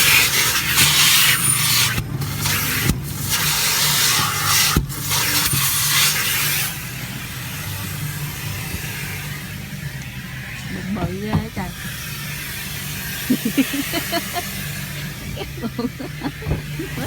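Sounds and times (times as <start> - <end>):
low motor hum: 6.7 - 17.0.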